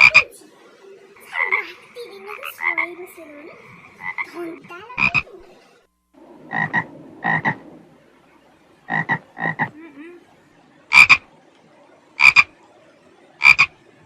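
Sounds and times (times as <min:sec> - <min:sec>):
frog croaking: 0:00.0 - 0:00.3, 0:01.2 - 0:05.4, 0:06.5 - 0:07.6, 0:08.9 - 0:10.2, 0:10.9 - 0:11.3, 0:12.2 - 0:12.6, 0:13.4 - 0:13.8.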